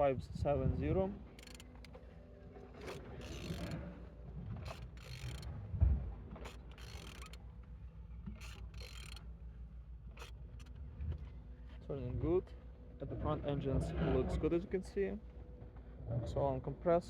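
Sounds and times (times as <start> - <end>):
engine turned by hand rumbling: 1.3 - 11.7
mechanical clicks and scrapes: 1.4 - 2.0, 2.7 - 3.9, 4.5 - 5.5, 6.4 - 7.4, 8.3 - 9.2, 10.2 - 10.8.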